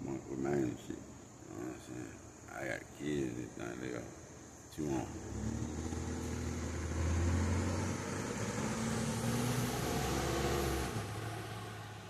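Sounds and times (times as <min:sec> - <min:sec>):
car engine humming: 0:04.8 - 0:12.0.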